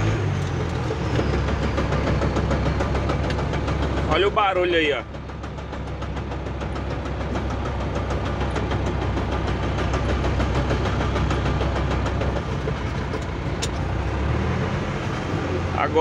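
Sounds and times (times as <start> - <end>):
engine low rumble: 0.0 - 16.0
gearbox rattling: 6.6 - 14.0.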